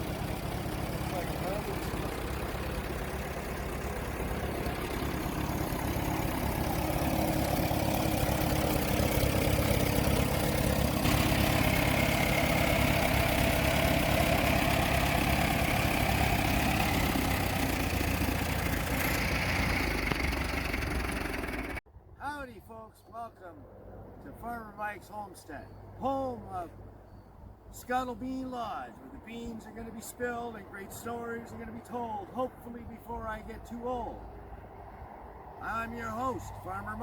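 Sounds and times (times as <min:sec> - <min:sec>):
engine idling: 0:00.0 - 0:21.8.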